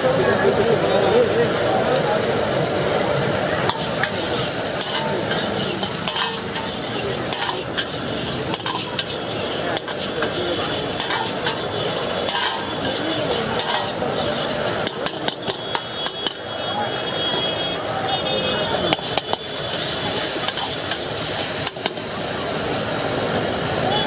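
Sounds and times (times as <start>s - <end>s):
chicken sizzling in a pan: 3.5s - 16.8s, 18.9s - 24.0s
metal spoon scraping a pan: 3.7s - 16.4s, 18.9s - 22.1s.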